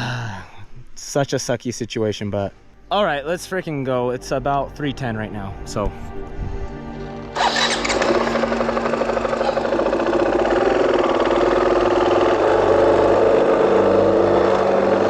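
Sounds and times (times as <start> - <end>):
dirt bike engine running: 7.3 - 15.0.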